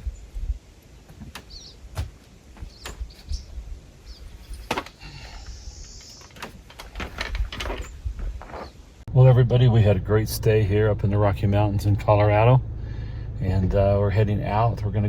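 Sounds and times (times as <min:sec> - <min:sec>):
low outdoor rumble: 0:00.0 - 0:15.0
high bird chirps: 0:05.4 - 0:06.3.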